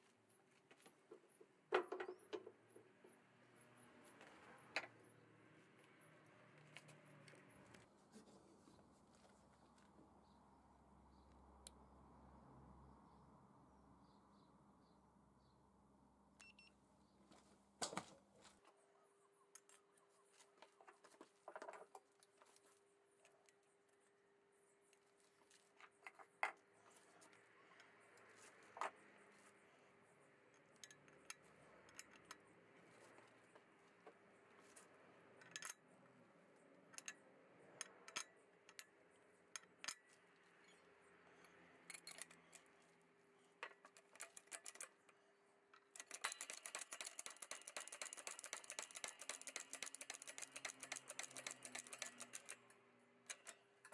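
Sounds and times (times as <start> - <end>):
small metallic clicks and clinks: 19.5 - 24.1, 30.5 - 53.9.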